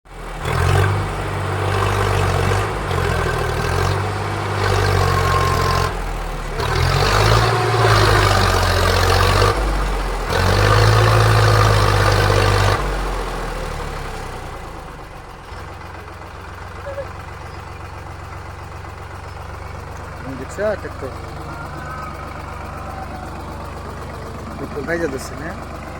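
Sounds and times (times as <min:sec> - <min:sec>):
tractor engine revving: 0:00.1 - 0:25.9.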